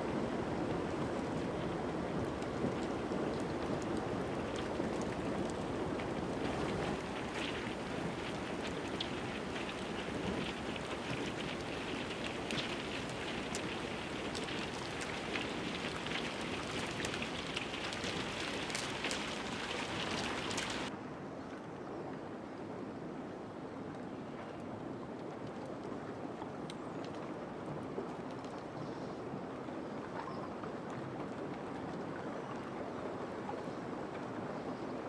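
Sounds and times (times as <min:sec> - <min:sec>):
ice grinding and crackling: 0:04.4 - 0:20.9
steady rushing hiss: 0:05.7 - 0:20.9.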